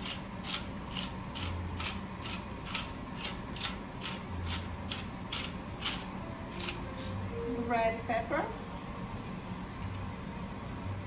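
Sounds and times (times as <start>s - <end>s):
pepper mill grinding: 0.0s - 7.2s.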